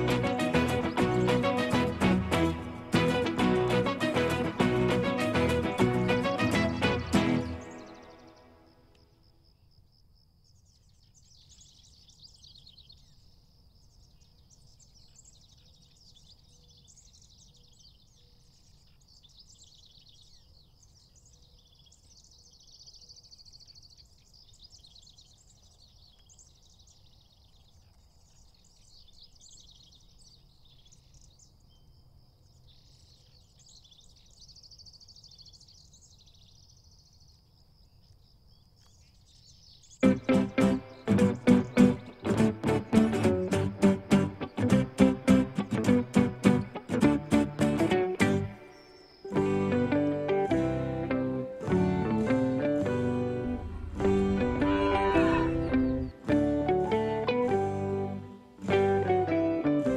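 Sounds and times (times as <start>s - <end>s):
songbirds chirping: 0.0s - 59.9s
low outdoor rumble: 52.6s - 56.7s.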